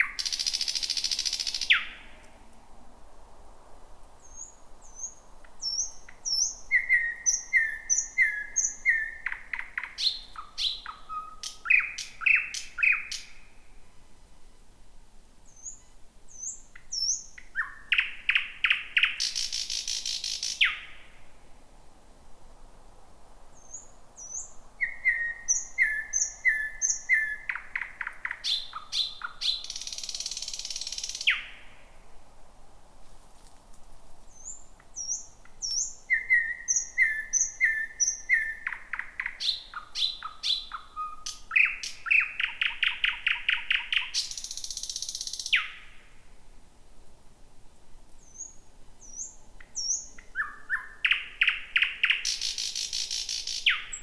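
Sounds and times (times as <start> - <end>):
bird singing: 0.0 - 2.2, 4.2 - 13.5, 15.5 - 21.1, 23.6 - 31.8, 34.3 - 46.0, 48.2 - 54.0.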